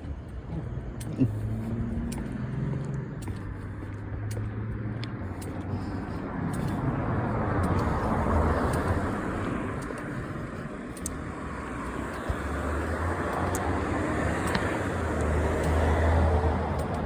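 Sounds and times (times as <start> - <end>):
cars driving past: 0.0 - 17.0.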